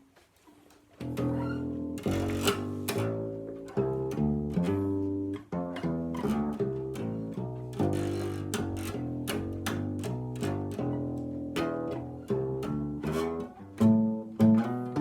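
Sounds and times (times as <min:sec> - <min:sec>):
bass guitar notes plucked: 0:01.0 - 0:15.0.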